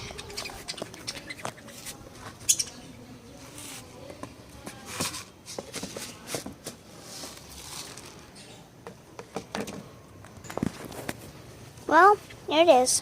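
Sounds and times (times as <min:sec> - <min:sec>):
rustling: 0:04.7 - 0:08.5.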